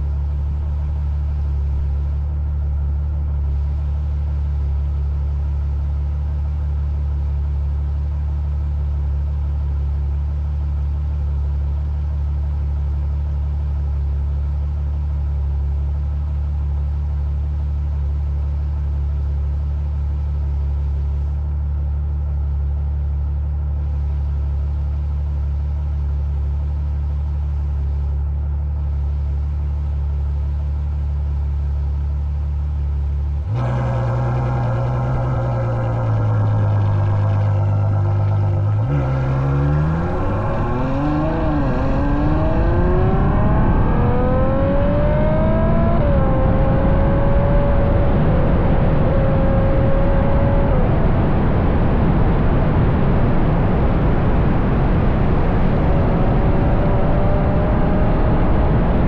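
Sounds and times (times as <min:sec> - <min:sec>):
sports car exhaust idling: 0:00.0 - 0:44.2.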